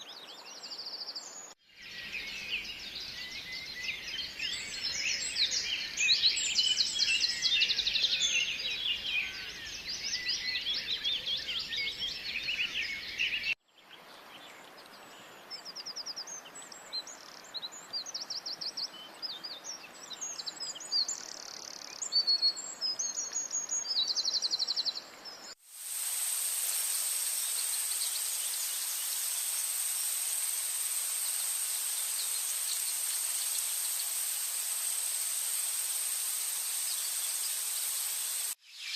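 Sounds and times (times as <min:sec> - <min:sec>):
high insect drone: 0:25.7 - 0:38.6
chirping bird calls: 0:27.0 - 0:38.9.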